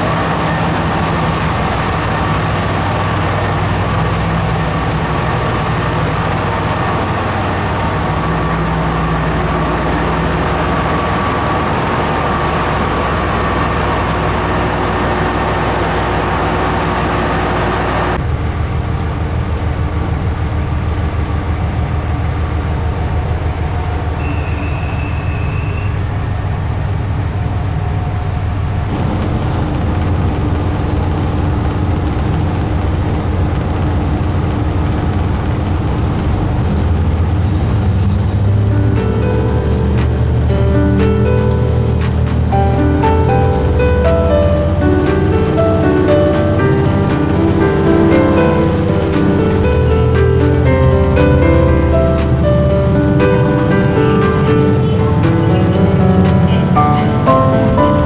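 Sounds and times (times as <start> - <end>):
railcar engine and rail noise: 0.0 - 58.0
high hiss: 28.9 - 38.5.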